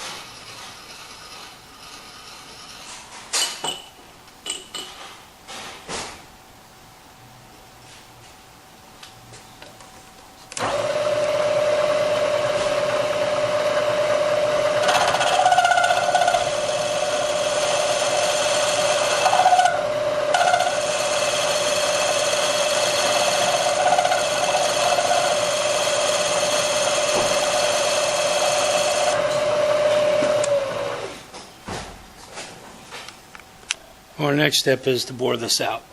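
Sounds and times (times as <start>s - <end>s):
machine tool spindle whining: 10.6s - 31.1s.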